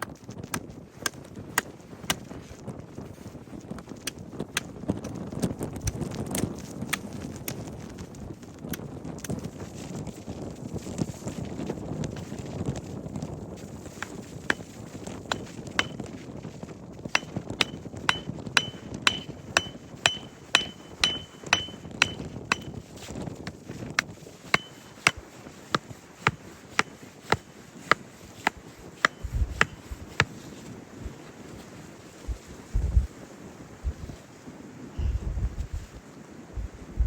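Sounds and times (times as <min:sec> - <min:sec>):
hammering with metallic ring: 0:15.3 - 0:16.0, 0:17.2 - 0:22.8, 0:24.6 - 0:25.2, 0:26.2 - 0:27.5, 0:28.5 - 0:30.3.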